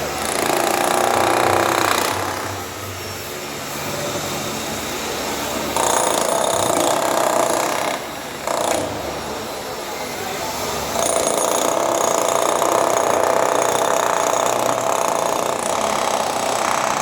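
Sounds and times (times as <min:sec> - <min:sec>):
drill running: 0:00.0 - 0:09.8, 0:10.8 - 0:17.0.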